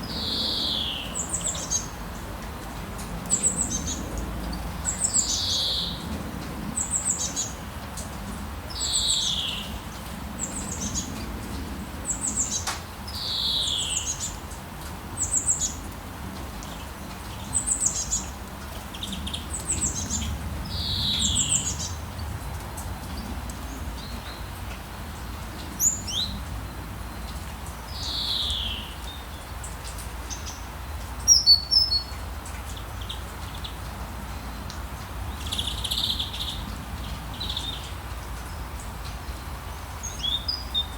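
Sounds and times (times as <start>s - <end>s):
low town rumble: 0.0s - 31.2s.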